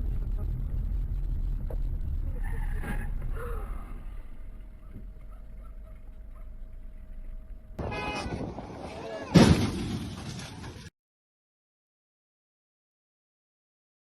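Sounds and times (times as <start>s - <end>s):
car driving rumble from inside: 0.0s - 7.8s.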